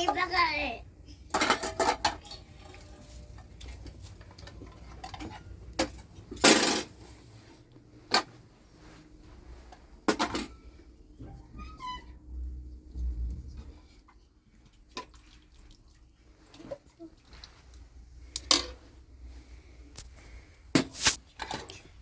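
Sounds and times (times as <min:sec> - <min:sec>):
dishes and cutlery clattering: 0:01.3 - 0:07.0.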